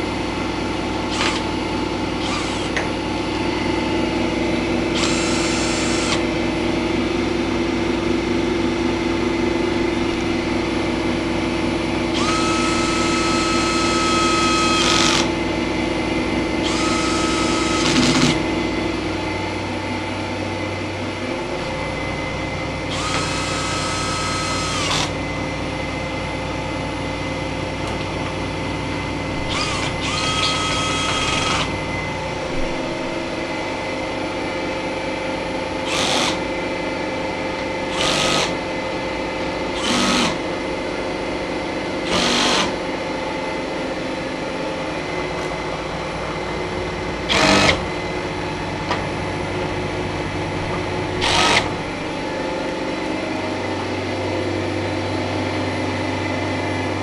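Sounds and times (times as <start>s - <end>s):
machine-room hum: 0.0s - 57.0s
small electric motor whirring: 2.2s - 2.8s, 4.9s - 6.2s, 12.1s - 15.3s, 16.6s - 18.4s, 22.9s - 25.2s, 29.4s - 31.7s.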